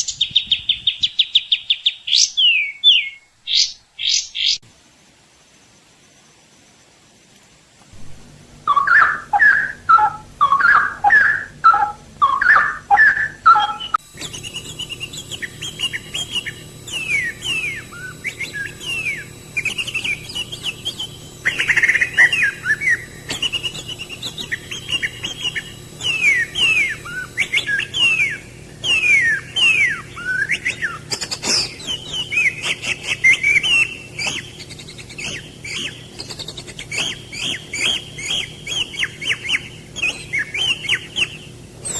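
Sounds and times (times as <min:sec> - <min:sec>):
bird quick falling whistles: 0:08.7 - 0:41.9.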